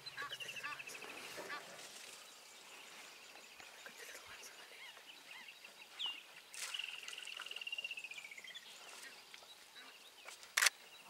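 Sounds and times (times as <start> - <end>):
sharp click: 10.6 - 10.8.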